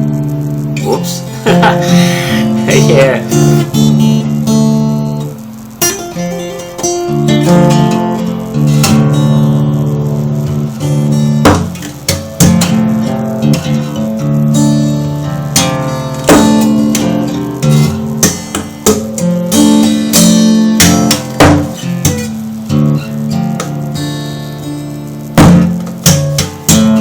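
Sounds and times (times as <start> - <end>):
guitar strummed and picked: 0.0 - 27.0.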